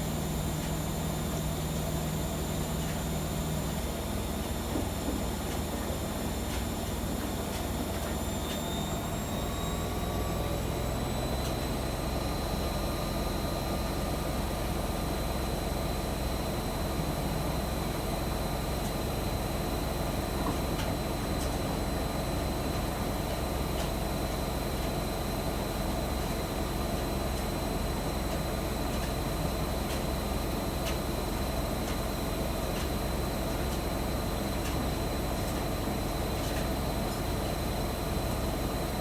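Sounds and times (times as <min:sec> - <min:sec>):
drum motor whine: 0:00.0 - 0:16.3
washing machine spinning: 0:00.0 - 0:39.0.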